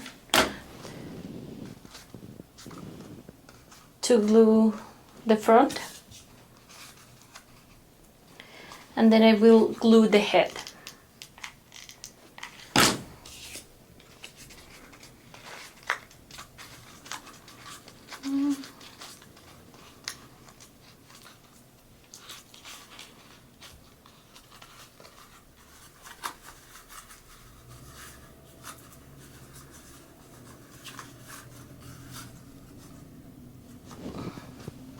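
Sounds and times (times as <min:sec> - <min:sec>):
paper scratching: 0:14.2 - 0:33.1.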